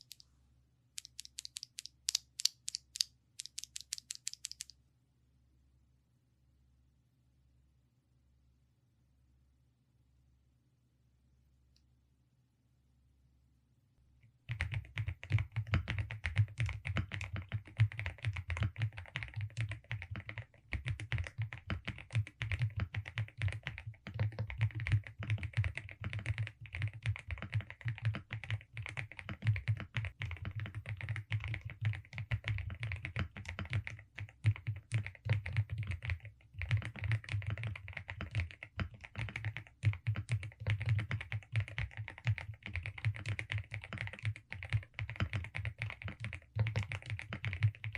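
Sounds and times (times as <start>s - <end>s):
fast typing on mechanical keyboard: 0.0s - 0.2s, 1.0s - 4.7s, 14.5s - 47.9s.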